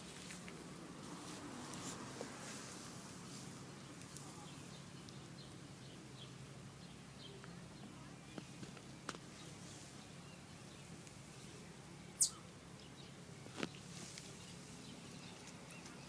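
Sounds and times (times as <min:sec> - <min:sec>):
high bird chirps: 0:12.1 - 0:12.4.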